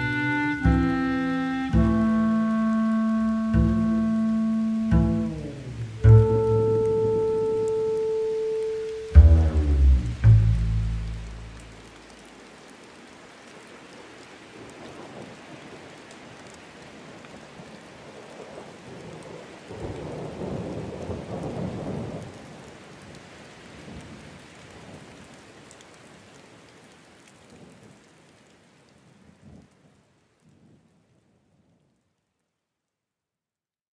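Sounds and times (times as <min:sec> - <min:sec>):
steady rain: 0:00.0 - 0:33.1
thunder rumble: 0:09.1 - 0:12.1.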